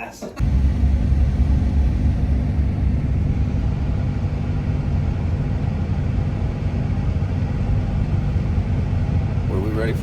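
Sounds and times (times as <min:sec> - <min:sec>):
truck engine and road drone: 0:00.4 - 0:10.0.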